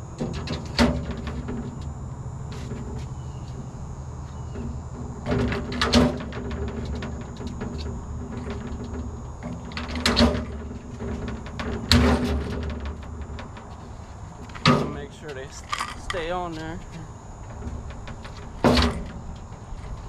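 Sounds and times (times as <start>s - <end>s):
steady low hum: 0.0s - 20.0s
tool boxes clattering and knocking: 14.6s - 16.4s.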